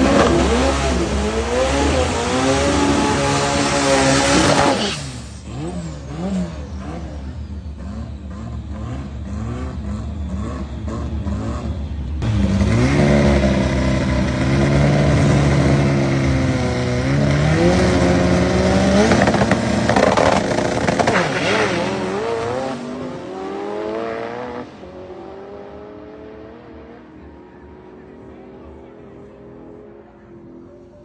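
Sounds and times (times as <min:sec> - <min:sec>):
car engine at full throttle: 0:00.0 - 0:31.0.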